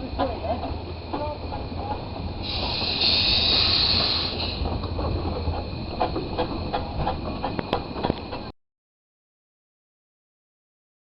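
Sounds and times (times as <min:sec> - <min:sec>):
steam train rumbling: 0:00.0 - 0:08.5
steam hissing: 0:00.9 - 0:06.6.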